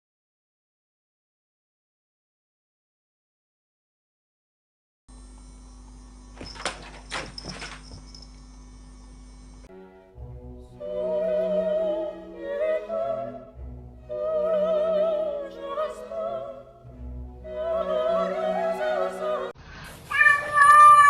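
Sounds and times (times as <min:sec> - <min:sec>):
classical accompaniment: 0:09.7 - 0:19.6
operatic singing voice: 0:10.8 - 0:19.6.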